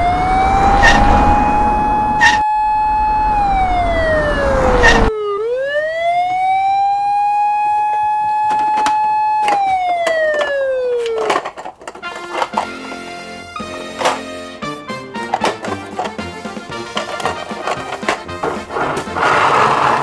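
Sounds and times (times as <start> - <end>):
low rumble: 0.0 - 5.1
siren wailing: 0.0 - 11.6.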